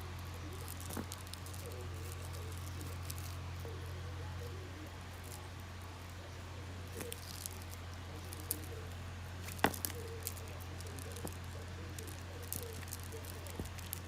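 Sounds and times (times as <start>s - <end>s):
wooden beads clicking: 0.0s - 3.5s, 6.9s - 14.0s
steady low hum: 0.0s - 14.0s.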